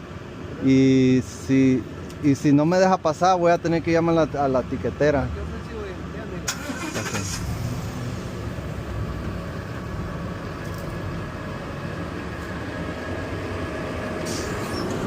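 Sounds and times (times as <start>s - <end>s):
truck engine idling: 0.0s - 15.0s
short hiss: 14.2s - 14.7s.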